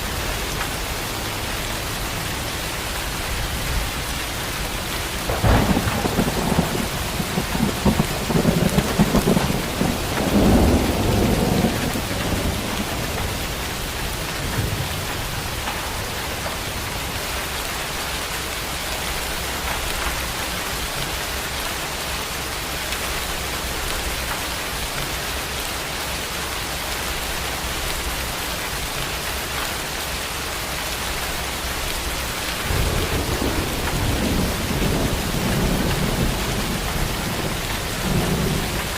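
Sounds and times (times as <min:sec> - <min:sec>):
steady rain falling: 0:00.0 - 0:38.9
thunder rumbling: 0:04.6 - 0:18.0, 0:31.6 - 0:38.9.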